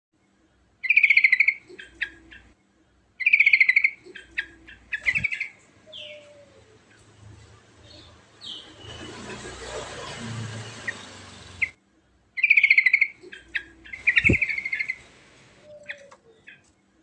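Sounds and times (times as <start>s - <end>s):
bird singing trilled phrases: 0.8s - 2.5s, 3.2s - 6.6s, 12.4s - 15.1s.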